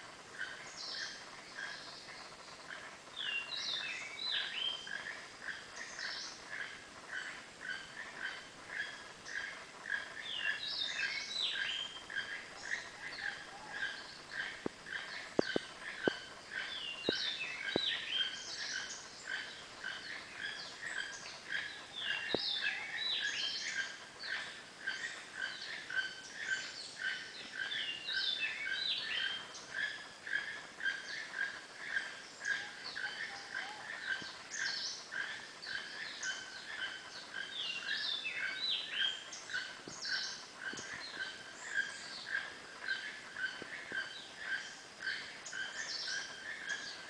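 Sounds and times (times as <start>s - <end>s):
birds chirping and whistling: 7.7s - 47.0s
soft ticks: 14.6s - 16.3s, 17.0s - 17.9s.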